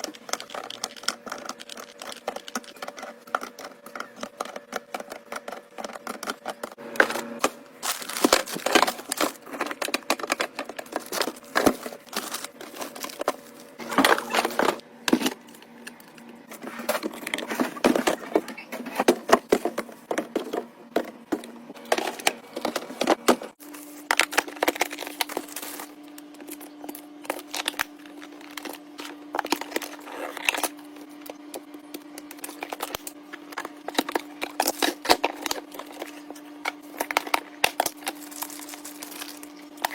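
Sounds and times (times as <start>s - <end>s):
fridge hum: 0.0s - 39.9s
containers clattering on shelves: 7.0s - 15.5s
plastic packaging crinkling: 7.0s - 16.2s, 36.9s - 39.9s.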